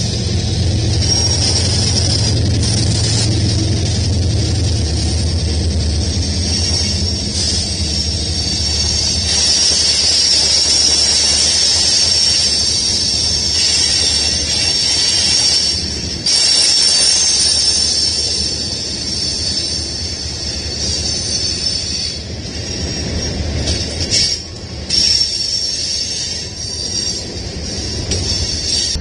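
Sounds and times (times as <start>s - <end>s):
high-pitched wheel whine: 0.0s - 22.2s
freight train wheels rumbling: 0.0s - 29.0s.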